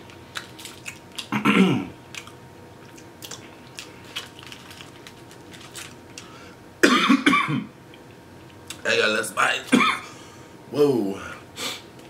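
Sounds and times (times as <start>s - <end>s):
wet chewing and mouth clicks: 0.0s - 1.3s, 2.1s - 6.3s.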